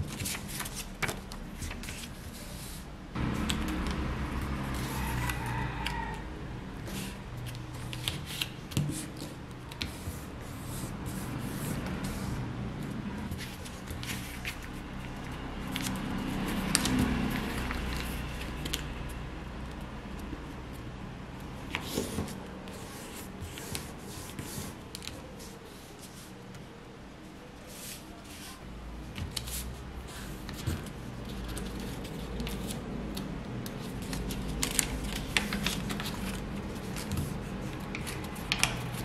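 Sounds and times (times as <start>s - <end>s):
paper folding and crinkling: 0.0s - 6.1s, 13.2s - 18.9s, 27.7s - 39.0s.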